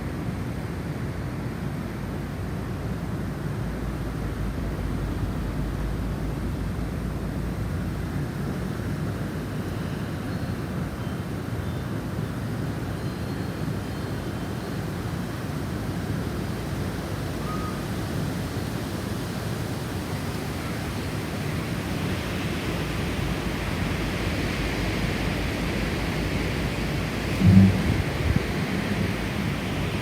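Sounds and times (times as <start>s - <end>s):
snowstorm wind blowing: 18.0s - 30.0s.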